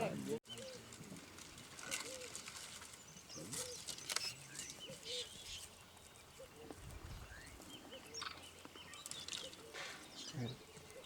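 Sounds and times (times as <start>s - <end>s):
high chirping calls: 3.2s - 11.0s.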